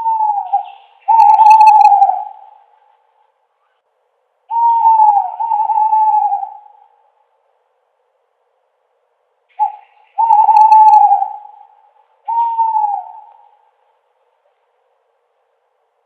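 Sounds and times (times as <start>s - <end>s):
owl hooting: 0.0s - 3.0s, 4.5s - 7.2s, 9.5s - 13.8s.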